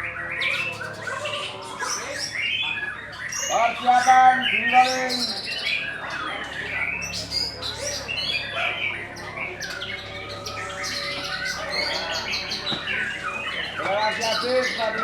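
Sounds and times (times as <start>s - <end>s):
songbirds chirping and trilling: 0.0s - 15.0s.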